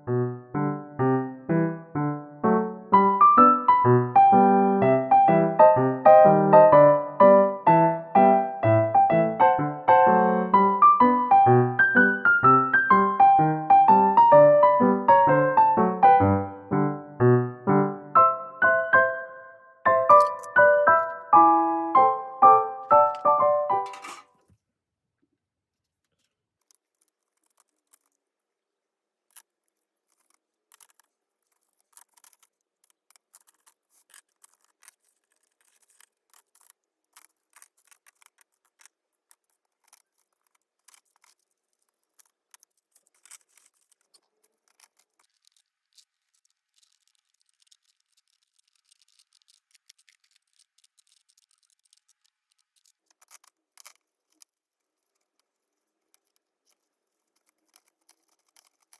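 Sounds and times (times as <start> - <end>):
wooden pencils clicking: 19.9 - 24.2, 26.1 - 28.2, 29.3 - 58.9.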